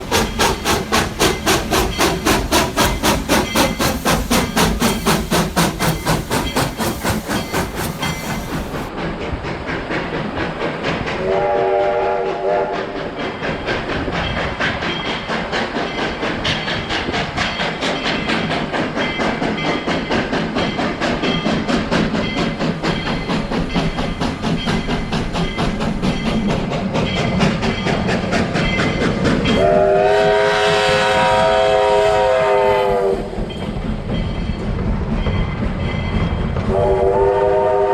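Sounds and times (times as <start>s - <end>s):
steam hissing: 0.0s - 34.2s
steam locomotive chuffing: 0.0s - 37.9s
train wheels on rails: 0.0s - 37.9s
steam whistle blast: 11.2s - 12.9s, 29.6s - 33.3s, 36.7s - 37.9s.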